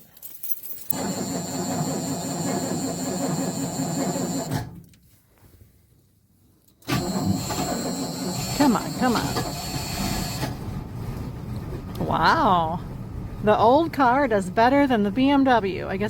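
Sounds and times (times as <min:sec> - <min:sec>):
starter motor cranking engine: 0:00.9 - 0:04.8, 0:06.9 - 0:11.6.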